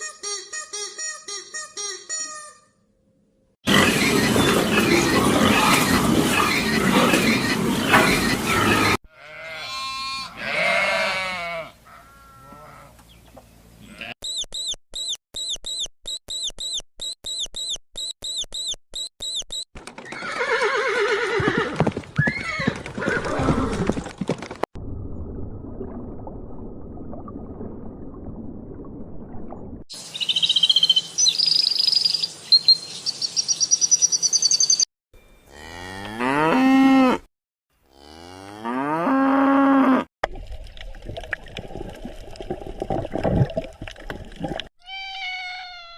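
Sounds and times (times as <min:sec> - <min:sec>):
high chirps: 0:14.2 - 0:19.7, 0:30.0 - 0:34.9.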